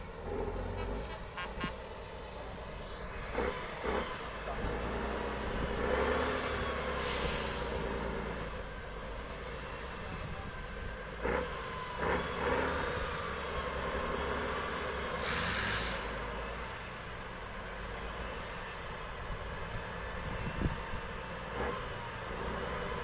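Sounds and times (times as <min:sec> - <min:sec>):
diesel truck engine running: 0:00.0 - 0:23.0
brief hiss: 0:07.0 - 0:07.8, 0:15.2 - 0:16.2.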